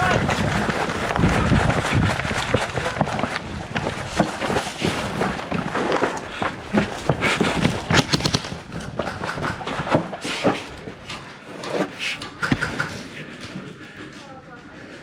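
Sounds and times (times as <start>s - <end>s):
airsoft guns firing: 7.8s - 9.8s, 12.4s - 13.1s.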